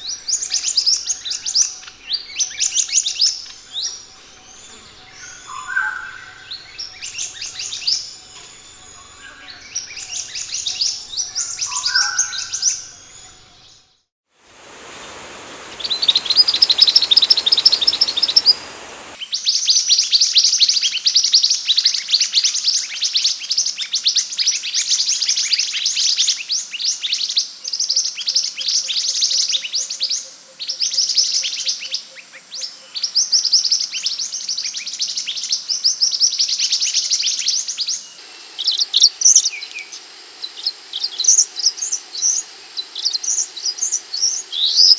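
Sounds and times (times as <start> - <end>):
bird chirps and trills: 0.1 - 13.5, 14.6 - 19.2.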